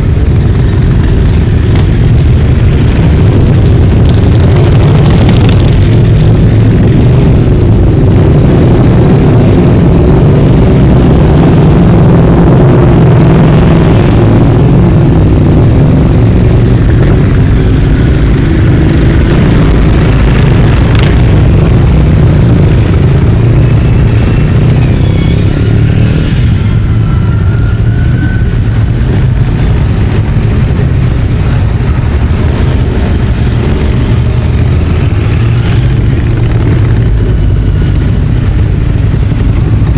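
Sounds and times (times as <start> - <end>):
motorcycle engines revving: 0.0 - 39.9
motorcycles riding past: 17.1 - 30.8.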